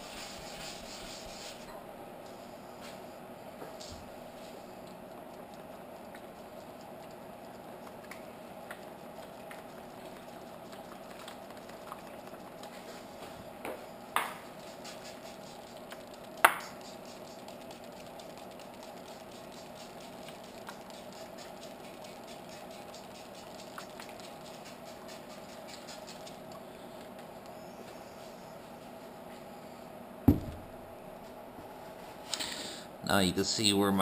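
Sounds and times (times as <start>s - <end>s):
wet sanding strokes: 0.0s - 1.7s, 14.6s - 15.9s, 19.1s - 26.4s
steady hum: 0.0s - 34.0s
sharp knocks: 30.3s - 30.7s.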